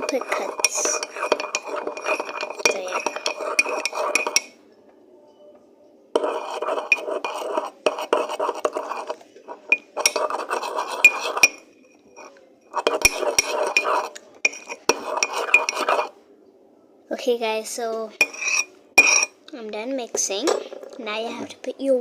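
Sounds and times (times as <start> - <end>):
utensil scraping container: 0.0 - 4.5, 6.2 - 11.6, 12.2 - 16.1.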